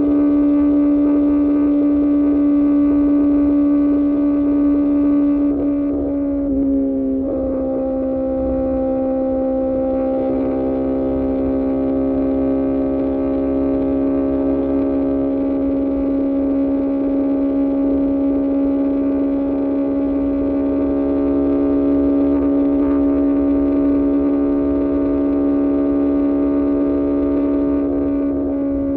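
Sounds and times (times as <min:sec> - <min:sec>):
motorcycle engine droning: 0:00.0 - 0:28.9.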